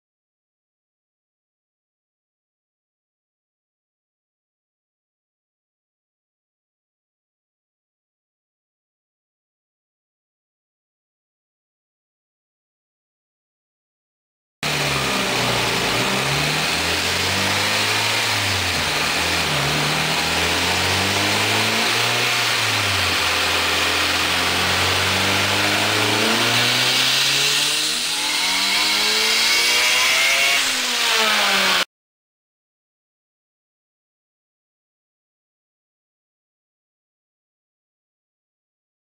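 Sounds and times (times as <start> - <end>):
turbocharged car engine revving: 14.6 - 31.8.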